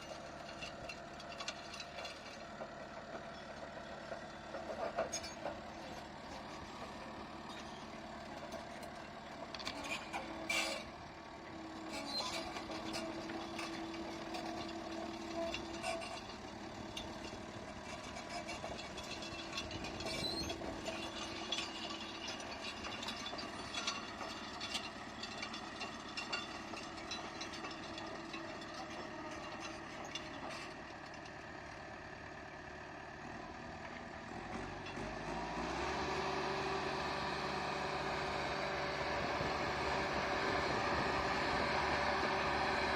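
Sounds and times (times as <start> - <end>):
bulldozer diesel engine running: 0.0 - 42.9
metallic clanks and knocks: 12.3 - 31.3.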